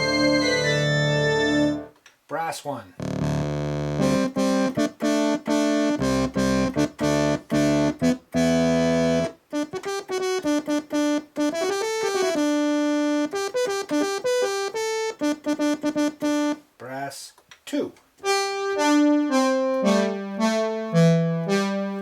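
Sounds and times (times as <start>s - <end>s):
synthesizer brass chord stabs: 0.0s - 1.9s, 3.0s - 12.7s, 18.2s - 22.0s
synthesizer melody: 0.0s - 1.9s, 3.0s - 10.4s, 18.2s - 22.0s.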